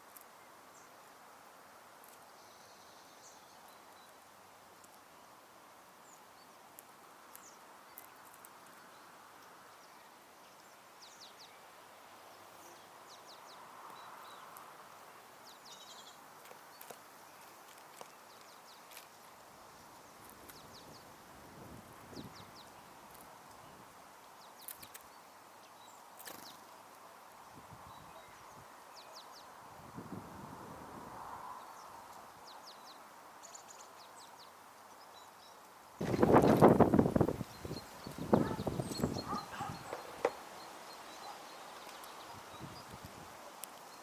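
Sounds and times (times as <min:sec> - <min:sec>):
high bird chirps: 0:37.6 - 0:40.4
light ticks: 0:43.6 - 0:44.0.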